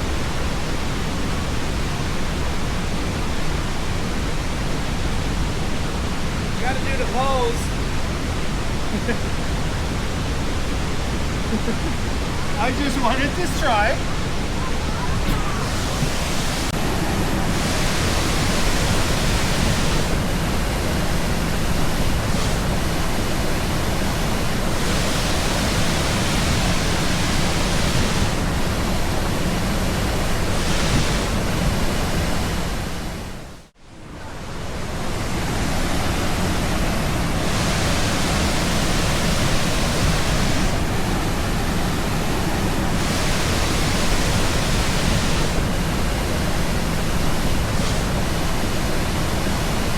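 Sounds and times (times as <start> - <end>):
waterfall pouring: 21.6 - 28.6, 37.4 - 45.7.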